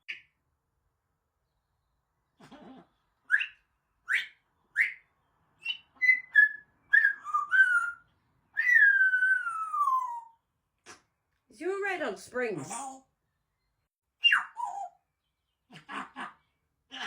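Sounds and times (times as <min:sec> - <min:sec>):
parrot whistling: 0:03.3 - 0:05.0, 0:05.6 - 0:10.4, 0:14.2 - 0:15.0.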